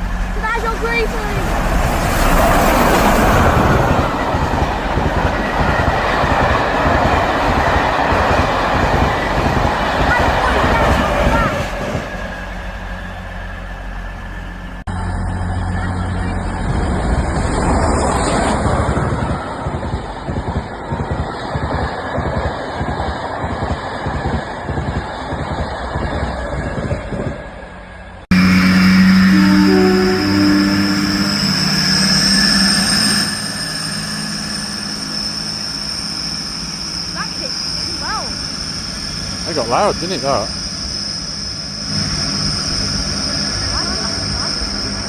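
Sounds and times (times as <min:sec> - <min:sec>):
train rushing past: 0:00.0 - 0:45.0
low hum: 0:11.0 - 0:45.0
high-pitched whine: 0:25.2 - 0:45.0.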